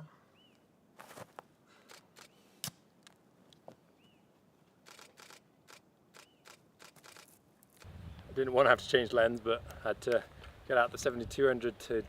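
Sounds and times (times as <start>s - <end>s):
camera clicks and rustling: 1.8s - 3.2s, 4.8s - 7.9s.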